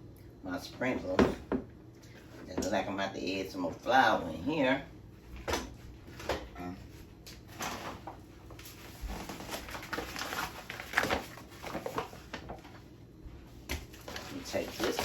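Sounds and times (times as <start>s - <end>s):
kitchen items knocking and rustling: 0.9s - 2.9s, 7.5s - 12.8s, 13.6s - 15.0s.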